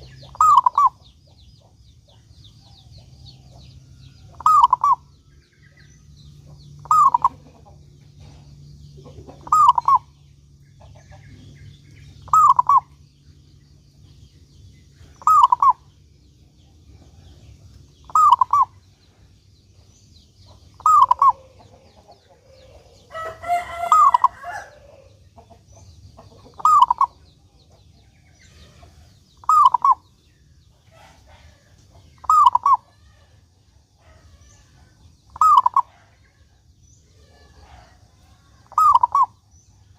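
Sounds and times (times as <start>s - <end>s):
dove cooing: 0.0s - 1.0s, 4.3s - 5.1s, 6.8s - 8.4s, 9.0s - 10.2s, 12.2s - 13.0s, 15.0s - 15.9s, 18.0s - 18.8s, 20.8s - 25.2s, 26.5s - 27.2s, 28.5s - 30.0s, 32.2s - 33.3s, 35.3s - 36.4s, 38.6s - 39.4s
different bird call: 0.0s - 1.1s, 4.3s - 5.1s, 6.8s - 7.5s, 9.3s - 10.2s, 12.2s - 13.0s, 15.0s - 15.9s, 18.0s - 18.8s, 20.8s - 21.7s, 22.6s - 25.1s, 26.6s - 27.2s, 29.4s - 30.1s, 32.2s - 33.4s, 35.3s - 35.9s, 38.6s - 39.4s
faint low hum: 0.0s - 39.9s.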